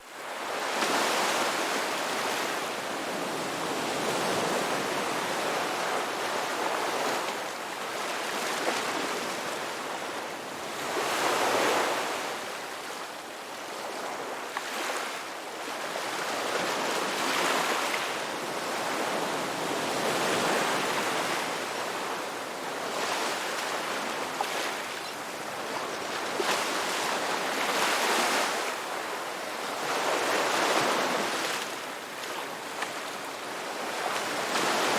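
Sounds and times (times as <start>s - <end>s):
ocean surf washing onto beach: 16.1s - 34.9s.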